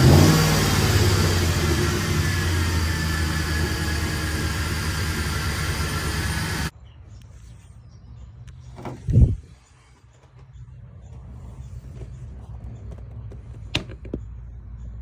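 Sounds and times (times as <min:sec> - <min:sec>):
car engine running: 0:00.0 - 0:06.7.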